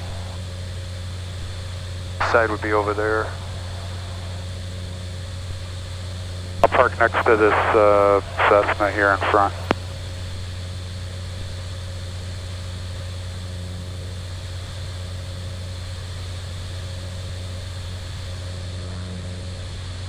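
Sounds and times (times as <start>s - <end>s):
faint steady whine: 0.0s - 20.0s
turboprop engine deep hum: 0.0s - 20.0s.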